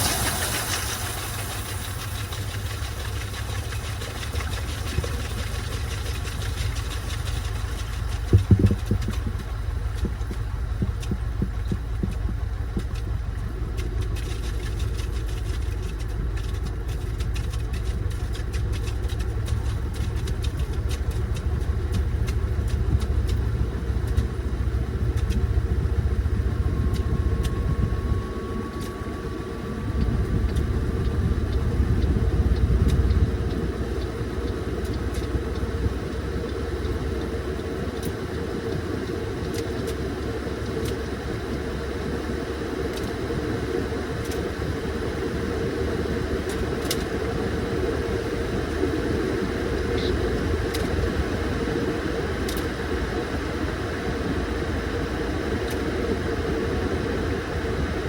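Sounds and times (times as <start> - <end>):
drum churning water: 0.0 - 58.0
washing machine motor humming: 0.0 - 58.0
clatter of knocks: 7.2 - 13.1.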